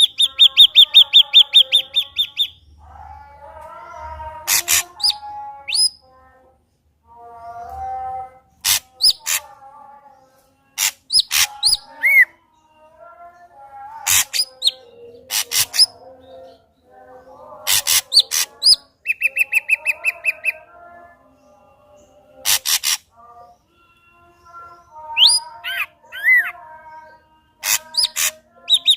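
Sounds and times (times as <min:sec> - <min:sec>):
bird song with clicks and whistles: 0:00.0 - 0:02.6, 0:04.5 - 0:06.0, 0:07.5 - 0:09.5, 0:10.7 - 0:12.3, 0:14.1 - 0:16.6, 0:17.7 - 0:20.7, 0:23.7 - 0:26.7, 0:27.6 - 0:28.9.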